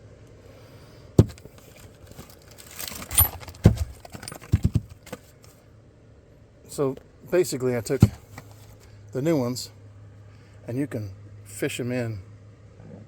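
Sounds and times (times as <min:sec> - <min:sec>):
metal parts knocking and clicking: 0:01.2 - 0:05.3, 0:07.8 - 0:08.6
short rustle: 0:01.2 - 0:05.6.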